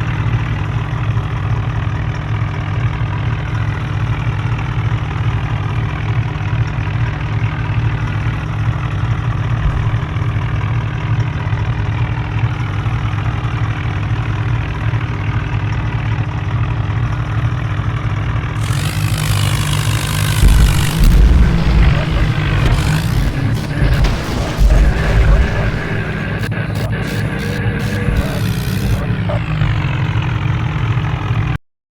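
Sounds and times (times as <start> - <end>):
loud hiss: 18.6 - 30.0
tractor engine droning: 18.6 - 30.5.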